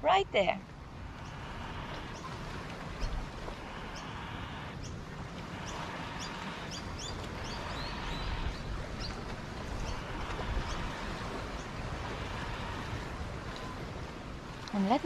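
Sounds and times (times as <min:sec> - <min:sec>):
outdoor background rush: 0:00.0 - 0:15.0
small birds chirping: 0:03.8 - 0:09.2.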